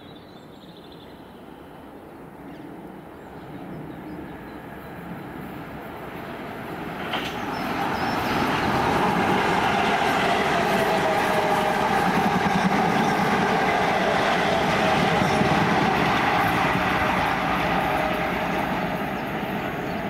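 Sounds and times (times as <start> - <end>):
passenger train passing at speed: 0.0 - 20.0.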